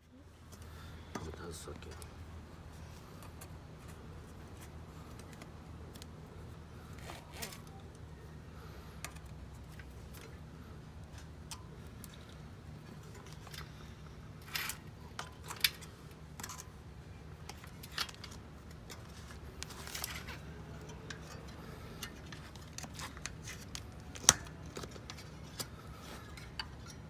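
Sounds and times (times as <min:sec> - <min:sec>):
steady low hum: 0:00.0 - 0:27.0
small tools clicking and tapping: 0:17.4 - 0:27.0.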